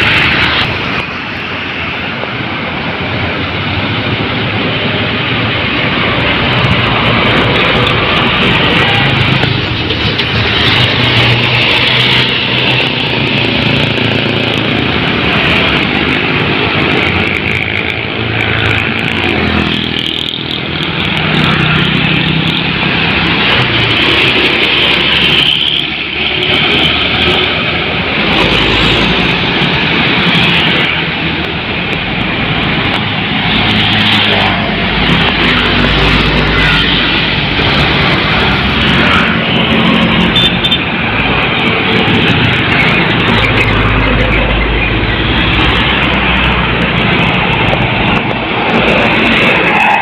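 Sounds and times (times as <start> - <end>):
heavy vehicles passing: 0.0 - 50.0.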